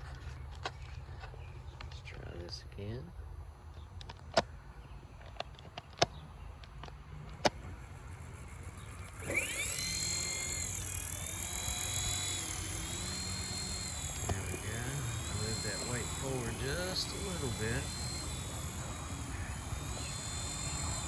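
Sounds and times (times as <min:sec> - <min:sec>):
rc helicopter motor whine: 0:05.9 - 0:21.0
sharp clicks: 0:09.0 - 0:21.0.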